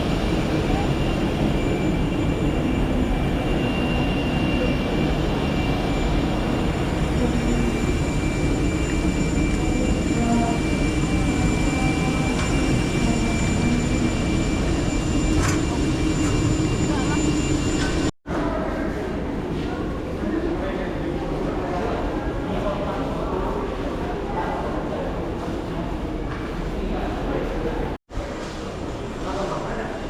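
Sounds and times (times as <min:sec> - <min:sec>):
airliner cabin engine roar: 0:00.0 - 0:30.0
thin whining tones: 0:00.3 - 0:18.1.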